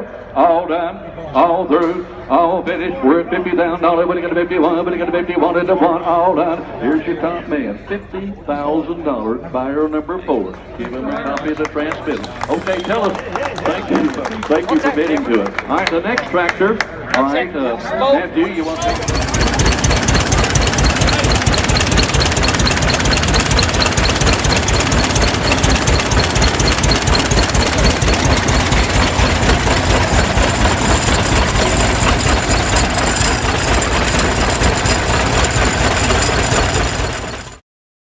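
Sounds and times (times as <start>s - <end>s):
tractor engine running: 12.0s - 15.2s, 18.5s - 37.6s.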